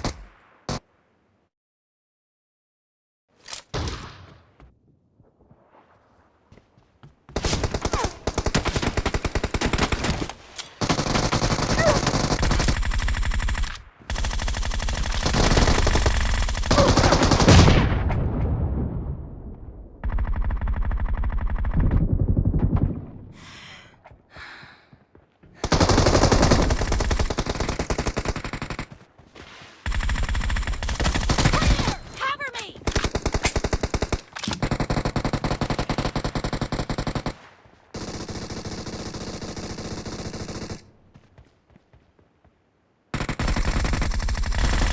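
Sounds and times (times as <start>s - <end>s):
video game automatic gunfire: 7.4s - 10.2s, 10.8s - 17.8s, 25.6s - 29.0s, 29.8s - 37.4s, 38.0s - 40.9s, 43.1s - 44.9s.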